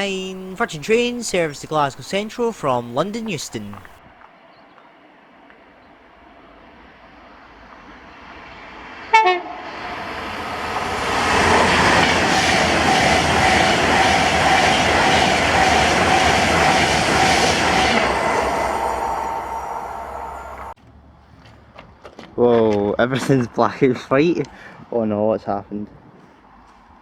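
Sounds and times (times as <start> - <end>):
train rushing past: 0.0 - 4.0, 6.4 - 20.8
train whine: 0.0 - 4.0, 6.3 - 20.8
train horn blast: 9.1 - 9.8.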